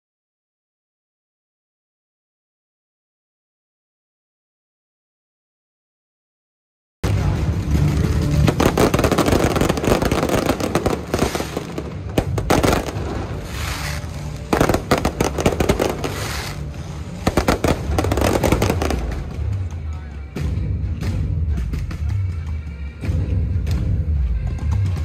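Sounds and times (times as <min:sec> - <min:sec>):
firework bangs: 0:07.0 - 0:19.7
firecrackers crackling: 0:07.0 - 0:20.1.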